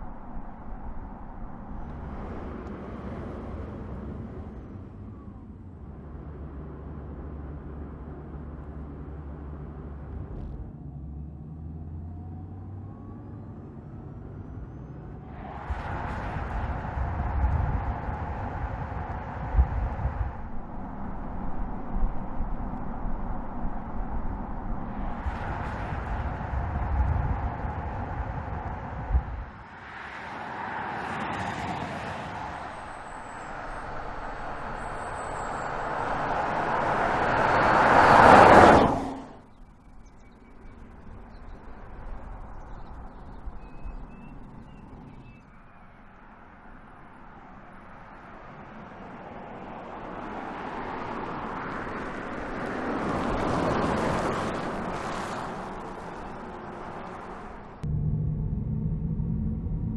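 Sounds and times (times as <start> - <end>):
low rumble: 0.0 - 12.2, 13.0 - 29.8, 55.7 - 59.9
electric car driving past: 0.0 - 59.9.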